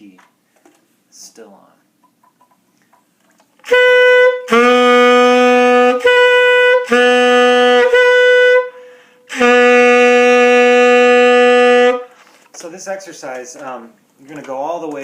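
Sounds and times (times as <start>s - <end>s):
tenor saxophone notes: 3.6s - 12.2s.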